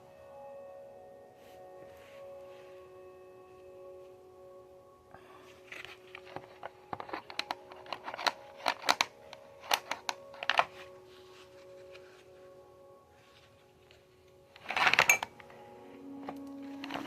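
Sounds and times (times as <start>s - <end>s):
plastic parts clicking and clacking: 5.7s - 10.9s, 14.5s - 15.5s, 16.2s - 17.0s.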